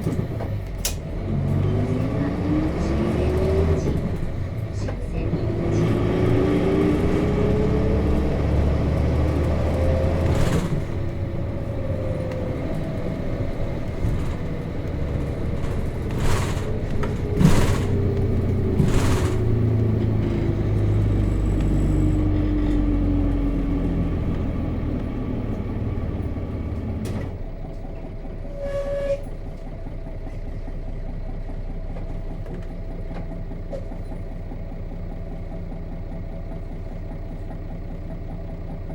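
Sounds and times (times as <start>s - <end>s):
diesel bus engine: 0.0s - 38.9s
knocks and rattles: 9.4s - 21.7s.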